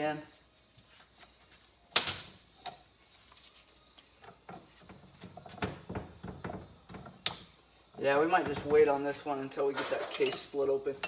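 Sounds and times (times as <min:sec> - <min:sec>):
metal tools clinking: 0:09.7 - 0:10.8.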